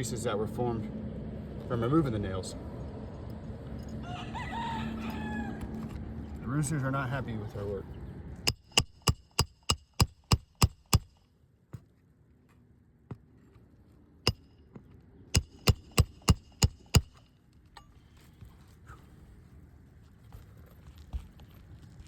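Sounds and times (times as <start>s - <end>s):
hammer striking metal: 8.5s - 11.2s, 14.3s - 14.5s, 15.4s - 17.2s.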